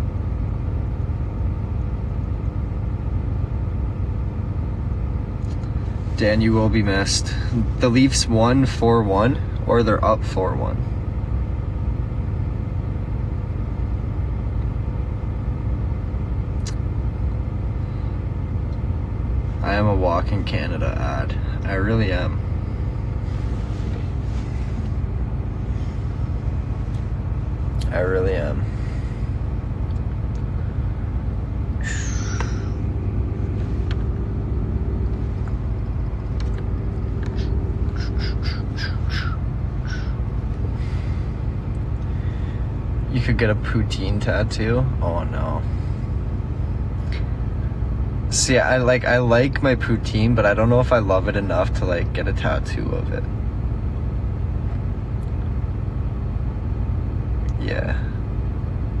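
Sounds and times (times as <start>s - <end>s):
truck idling: 20.8s - 49.5s.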